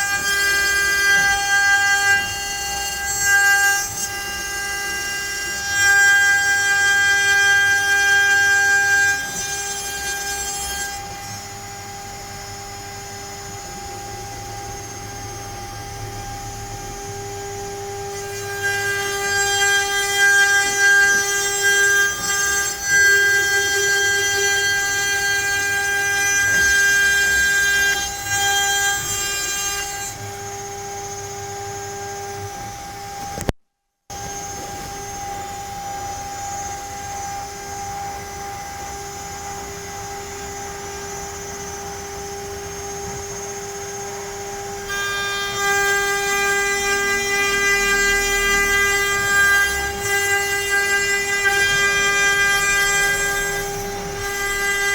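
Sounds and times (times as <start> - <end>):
bit cutting into wood: 0.0 - 11.5, 18.1 - 30.6
router spindle whining: 0.0 - 33.5, 34.1 - 54.9.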